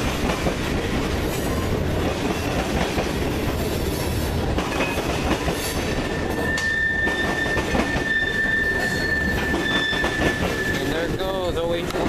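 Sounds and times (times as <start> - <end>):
train wheels rumbling on rail: 0.0 - 12.0
high-pitched wheel squeal: 6.2 - 11.3.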